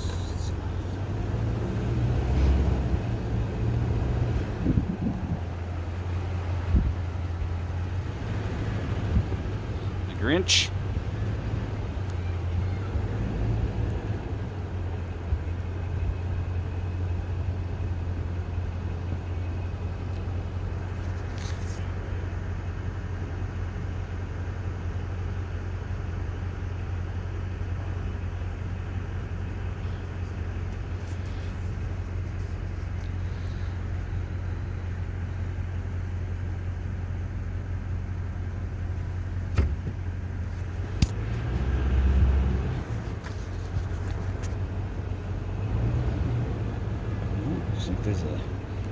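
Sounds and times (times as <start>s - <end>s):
car cabin hum: 0.0s - 1.4s, 27.2s - 45.5s.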